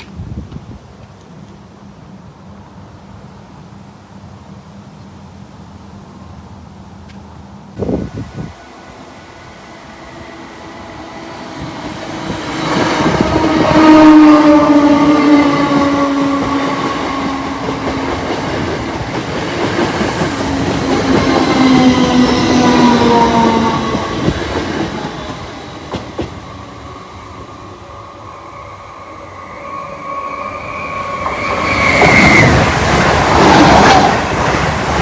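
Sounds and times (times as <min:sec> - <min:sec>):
electric train whine: 0:07.8 - 0:35.0.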